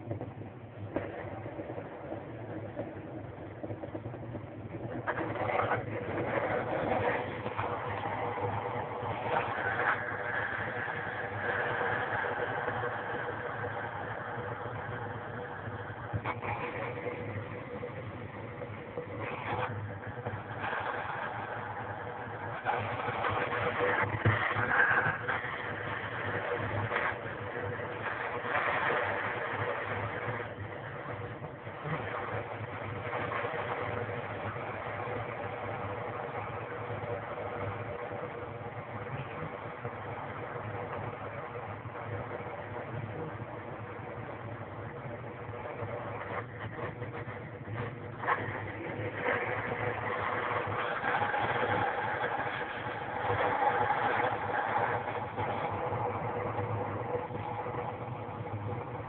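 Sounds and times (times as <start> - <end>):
constant hum: 0.0 - 59.0
wallpaper steamer hissing: 4.8 - 38.6, 45.6 - 59.0
steamer hissing: 5.1 - 18.1.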